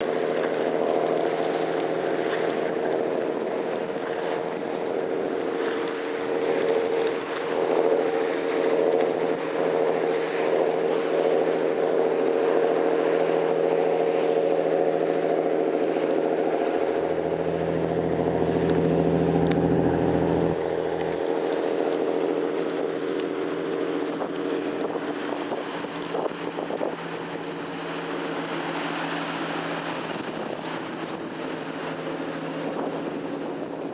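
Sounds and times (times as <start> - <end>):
boat engine running: 0.0 - 33.9
deep low rumble: 16.0 - 27.9.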